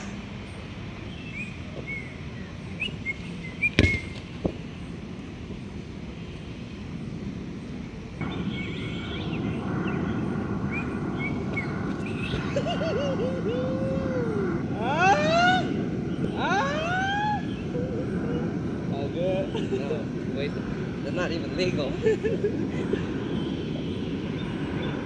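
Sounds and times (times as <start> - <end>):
small birds chirping: 0.0 - 25.0
steady background hum: 0.0 - 25.0
volleyball being hit: 3.8 - 4.6.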